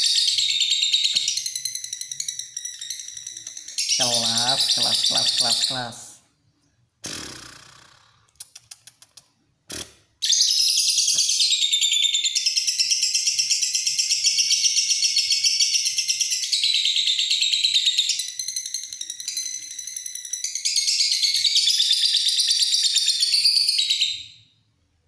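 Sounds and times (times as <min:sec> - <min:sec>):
lovebird shrill chattering: 0:02.4 - 0:06.0.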